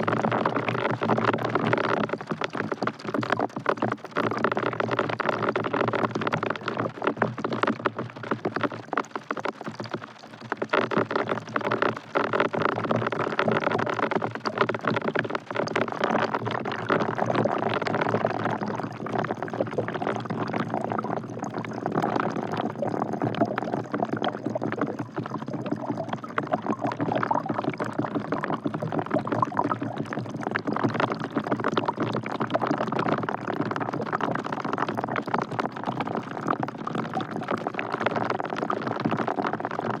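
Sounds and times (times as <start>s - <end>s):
rain dripping into bucket water: 0.0s - 40.0s.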